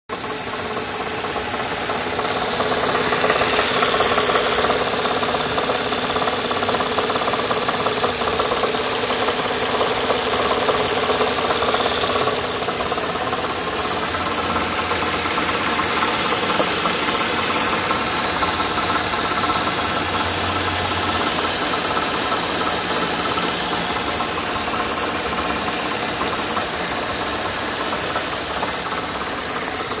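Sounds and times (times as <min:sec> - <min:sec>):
car engine idling: 0:00.1 - 0:30.0
knocking rattle: 0:00.2 - 0:30.0.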